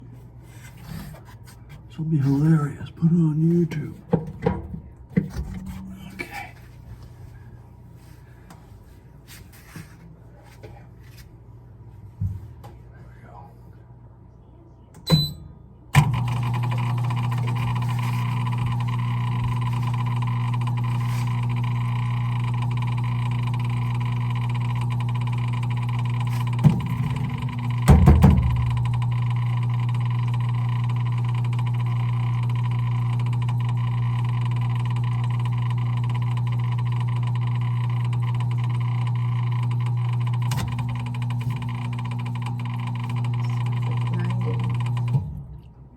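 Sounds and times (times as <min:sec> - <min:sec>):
washing machine humming: 0:00.0 - 0:14.1, 0:14.8 - 0:45.9
knock: 0:27.9 - 0:28.6.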